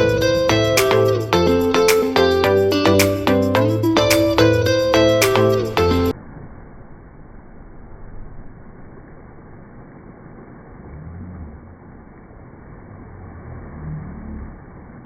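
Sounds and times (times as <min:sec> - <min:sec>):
muffled rushing noise: 0:00.0 - 0:02.4
faint low hums: 0:05.8 - 0:15.0.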